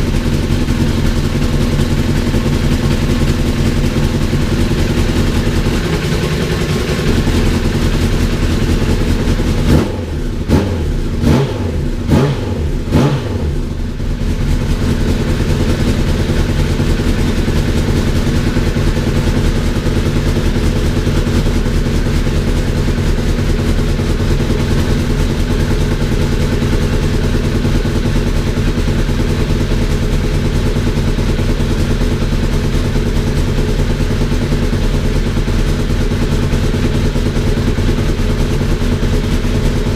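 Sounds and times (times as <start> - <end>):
motorcycle engine idling with throttle blips: 0.0 - 39.9.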